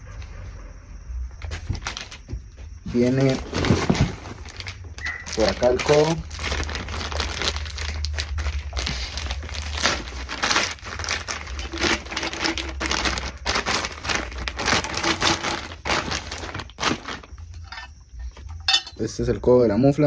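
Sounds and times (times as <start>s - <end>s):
packing material crinkling: 1.6s - 2.2s, 2.9s - 17.9s.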